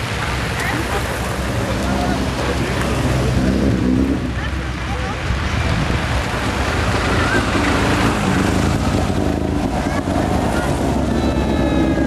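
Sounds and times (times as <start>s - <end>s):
race car engines passing: 0.0s - 12.0s.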